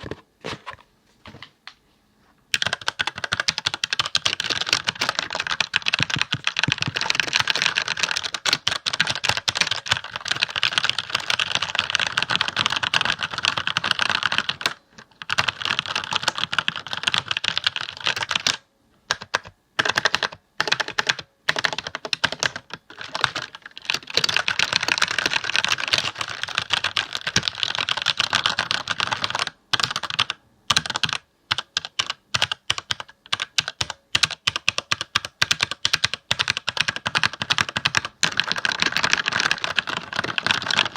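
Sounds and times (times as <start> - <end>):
computer keyboard typing: 2.5 - 40.9.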